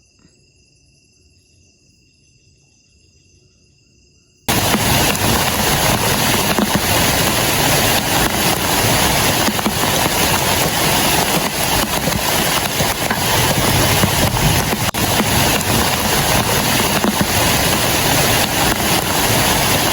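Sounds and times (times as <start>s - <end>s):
heavy rain pouring: 4.5s - 19.9s.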